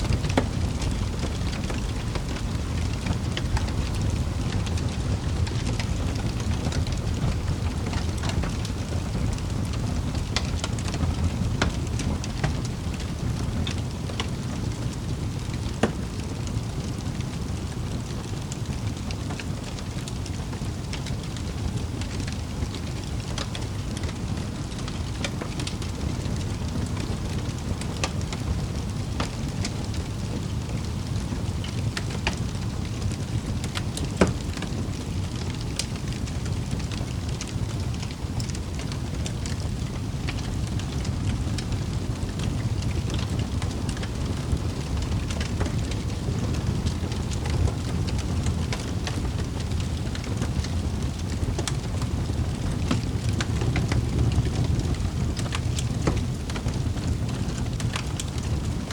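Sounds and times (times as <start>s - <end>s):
fire crackling and popping: 0.0s - 58.9s
low rumble of flames: 0.0s - 58.9s.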